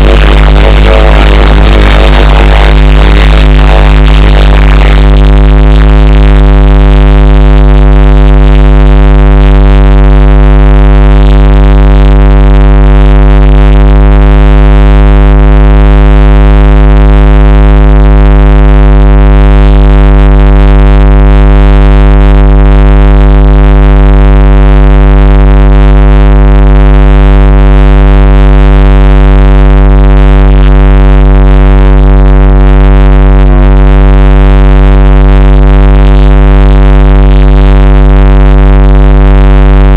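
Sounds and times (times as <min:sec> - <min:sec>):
synthesizer drone: 0:00.0 - 0:10.2.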